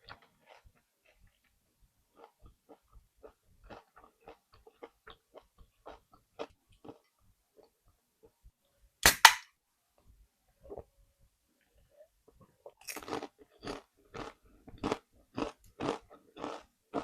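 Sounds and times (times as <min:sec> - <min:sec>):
rhythmic chewing crunches: 0:00.0 - 0:08.4, 0:12.3 - 0:17.0
chip bitten with loud crunches: 0:12.8 - 0:17.0.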